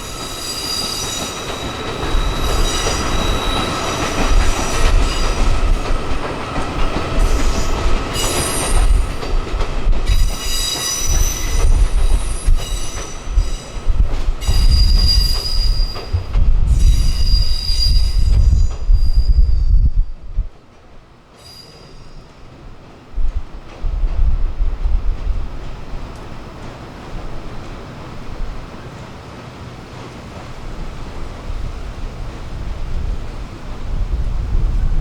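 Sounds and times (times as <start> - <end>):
train rumbling past: 0.0 - 35.0
high-pitched wheel squeal: 16.7 - 19.8.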